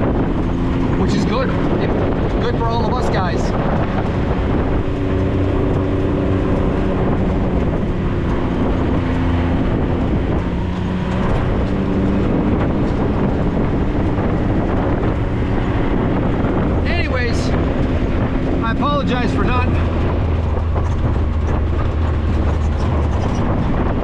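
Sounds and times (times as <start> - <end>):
driving noise rumble: 0.0 - 24.0
vehicle engine running: 0.0 - 24.0.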